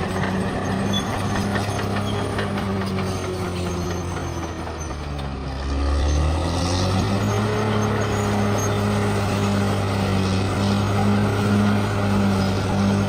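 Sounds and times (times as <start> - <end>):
bulldozer diesel engine drone: 0.0 - 13.0.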